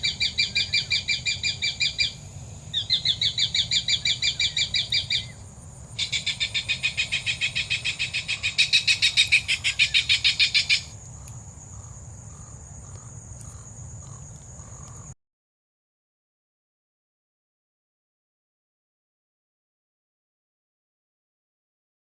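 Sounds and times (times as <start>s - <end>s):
bird chattering trills: 11.8s - 15.1s.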